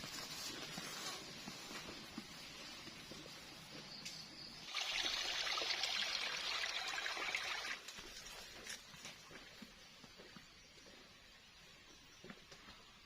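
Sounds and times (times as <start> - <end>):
water pouring: 4.6 - 7.9.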